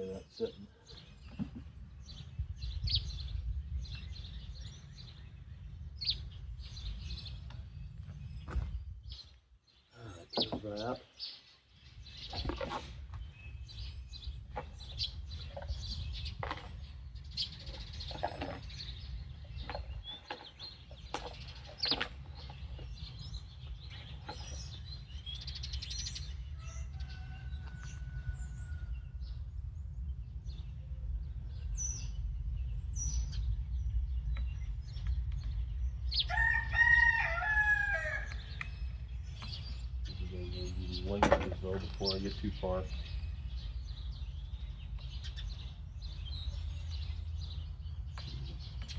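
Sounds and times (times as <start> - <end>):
bird crowing: 26.5 - 29.2, 36.2 - 38.6.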